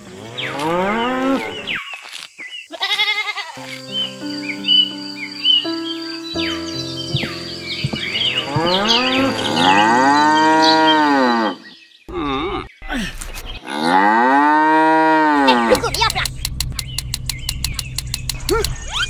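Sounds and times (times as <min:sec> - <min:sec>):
birds chirping: 0:00.0 - 0:19.0
cow mooing: 0:00.2 - 0:01.6, 0:08.2 - 0:12.7, 0:13.6 - 0:15.9.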